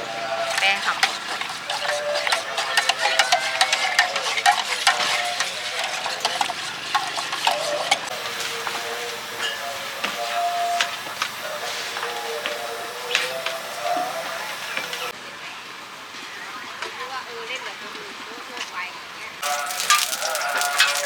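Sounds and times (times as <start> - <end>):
food sizzling in a wok: 8.1 - 15.1, 19.4 - 21.0.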